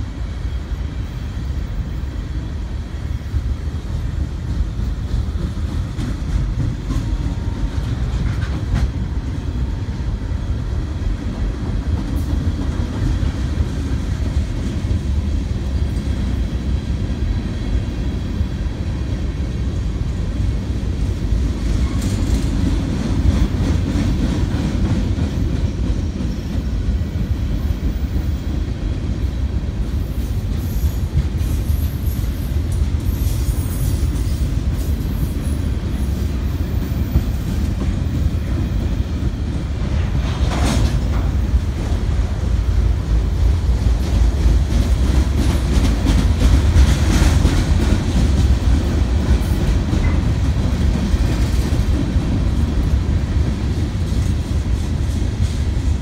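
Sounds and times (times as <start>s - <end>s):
freight train rumbling: 0.0s - 56.0s
train screech: 29.9s - 37.7s.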